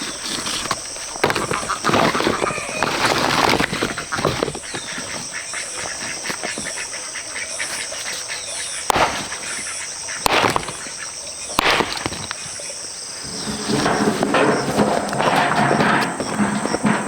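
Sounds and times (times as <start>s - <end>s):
insects droning: 0.0s - 17.0s
sharp knocks: 8.9s - 11.0s, 11.6s - 12.5s.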